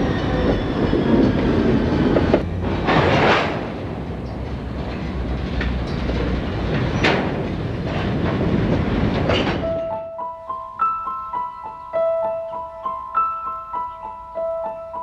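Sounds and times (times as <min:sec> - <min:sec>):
train wheels clattering on rails: 0:00.0 - 0:10.0
glockenspiel-like melody: 0:09.7 - 0:15.0.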